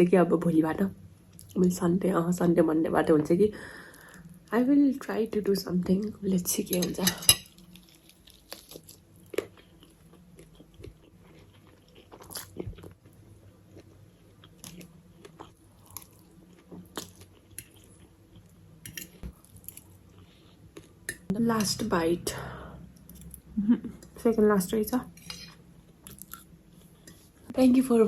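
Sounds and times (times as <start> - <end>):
faint steady hum: 0.0 - 28.0
person chewing food: 7.5 - 21.3, 25.2 - 27.3.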